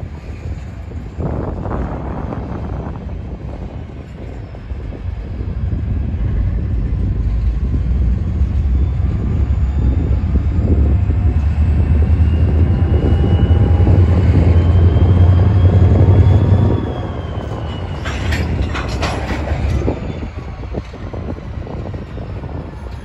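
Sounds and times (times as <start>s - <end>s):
diesel train rumbling past: 0.0s - 23.0s
sharp clanks: 18.0s - 20.1s.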